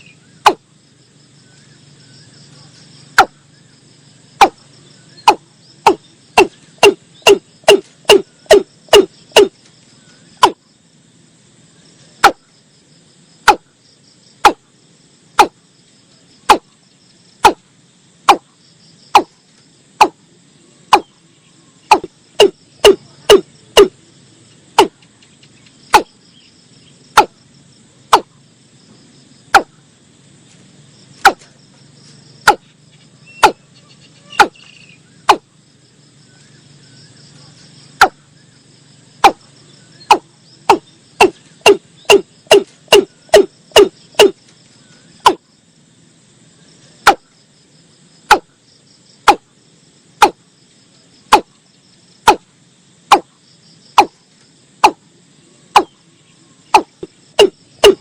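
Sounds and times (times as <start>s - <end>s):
crickets chirring: 0.0s - 58.0s.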